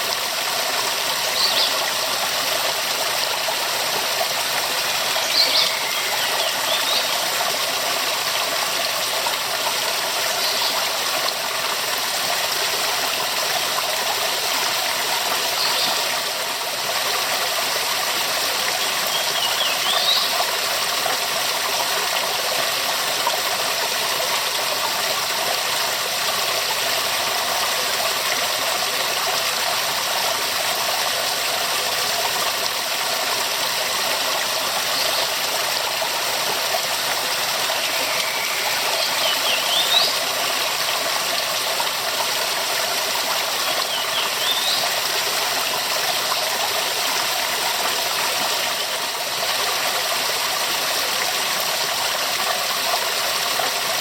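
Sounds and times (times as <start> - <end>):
waterfall rushing: 1.1 - 7.4, 33.2 - 47.8.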